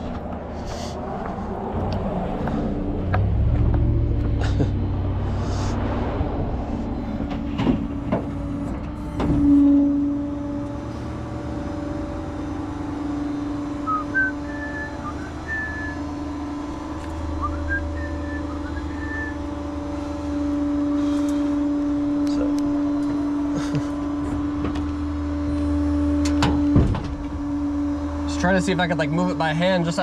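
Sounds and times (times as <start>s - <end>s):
truck engine running: 0.0s - 30.0s
faint whistling chirps: 13.8s - 16.0s, 17.4s - 19.4s.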